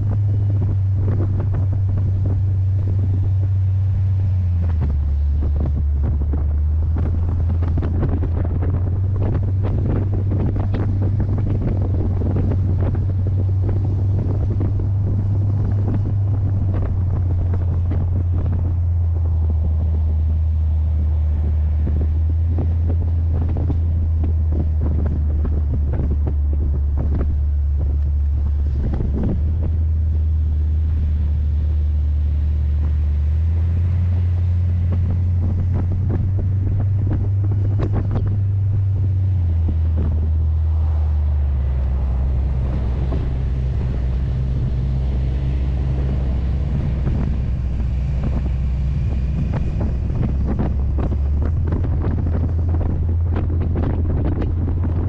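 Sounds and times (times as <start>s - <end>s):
car engine cruising drone: 0.0s - 55.0s
wind buffeting microphone: 0.0s - 55.0s.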